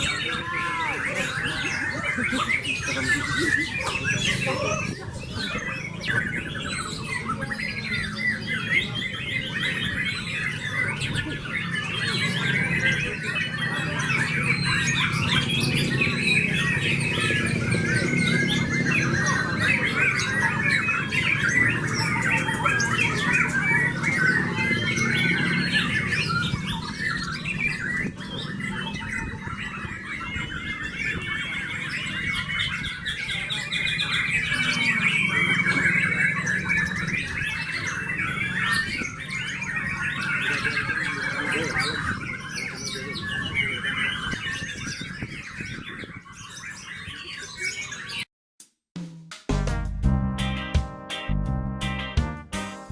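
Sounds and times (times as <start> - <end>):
bird song with rapid chirps and whistles: 0.0 - 48.3.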